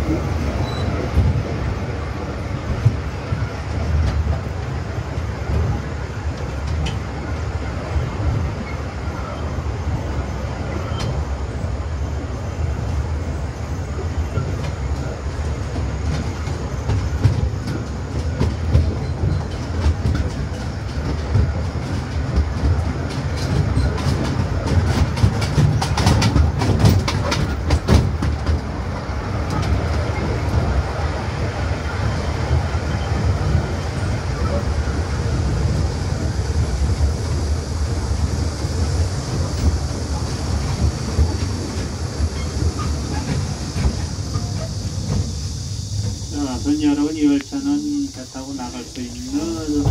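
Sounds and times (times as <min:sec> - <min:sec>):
train rumbling: 0:00.0 - 0:49.9
wheels clacking over rail joints: 0:14.2 - 0:37.3, 0:38.6 - 0:45.4.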